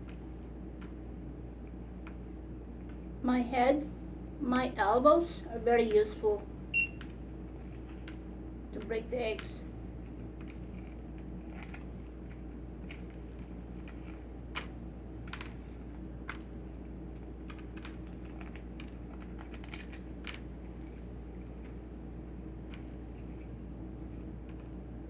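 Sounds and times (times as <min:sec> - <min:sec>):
steady low hum: 0:00.0 - 0:25.0
eggshell cracking and peeling: 0:09.8 - 0:21.8.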